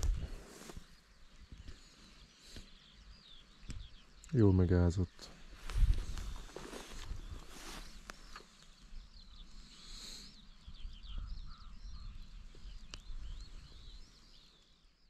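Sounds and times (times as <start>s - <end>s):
songbird singing: 0.0s - 15.0s.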